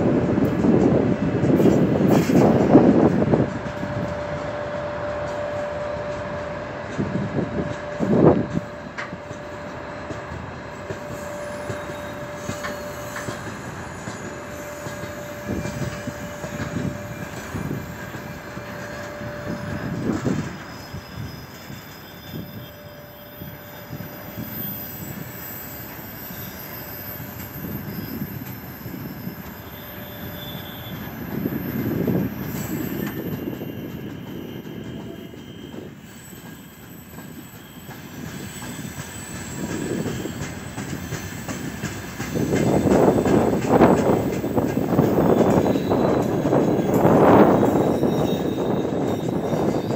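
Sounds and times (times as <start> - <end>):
freight train wheel rumble: 0.0 - 49.9
thin wheel squeal: 10.8 - 49.9.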